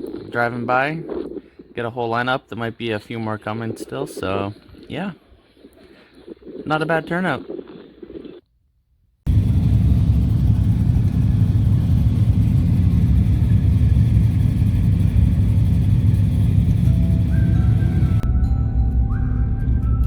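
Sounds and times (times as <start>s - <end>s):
car engine running: 9.3s - 18.2s.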